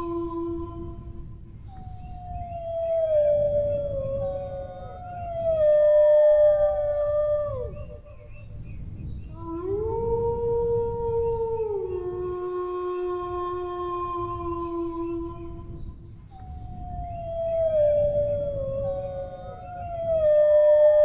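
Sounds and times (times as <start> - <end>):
dogs howling: 2.3 - 8.3, 9.3 - 15.8, 16.8 - 21.0.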